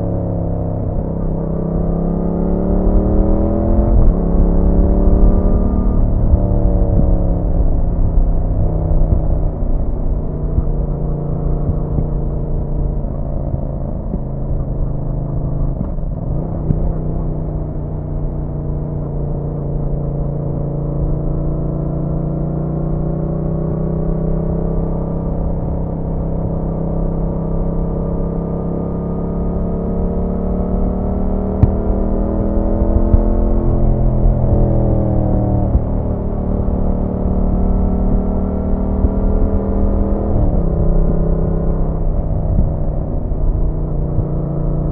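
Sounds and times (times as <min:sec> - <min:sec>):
wind rush on microphone: 0:00.0 - 0:20.6, 0:30.5 - 0:44.9
motorcycle engine running: 0:00.0 - 0:44.9.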